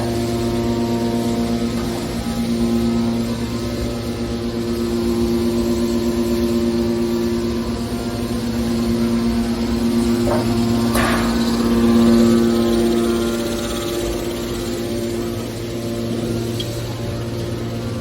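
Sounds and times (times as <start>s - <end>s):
hydraulic power unit humming: 0.0s - 18.0s
machine clanks: 10.0s - 12.8s.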